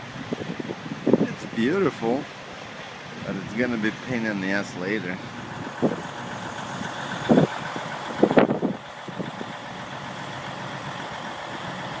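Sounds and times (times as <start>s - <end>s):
wind gusts buffeting microphone: 0.0s - 2.3s, 3.0s - 9.9s
wind hiss on microphone: 0.0s - 2.3s.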